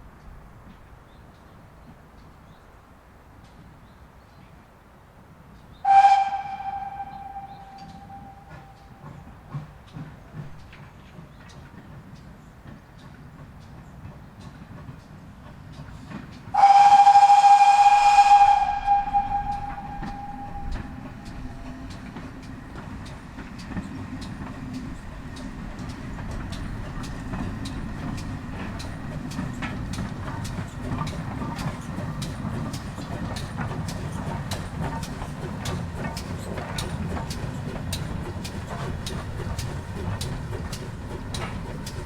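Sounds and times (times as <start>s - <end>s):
train rumbling: 0.0s - 42.0s
steam locomotive whistle: 5.8s - 9.2s, 16.5s - 21.9s
sharp rhythmic clicks of wheels: 19.0s - 42.0s.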